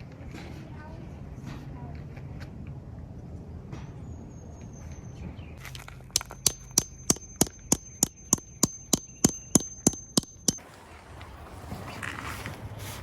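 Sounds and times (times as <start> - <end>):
quick run of sharp knocks: 6.2 - 10.6.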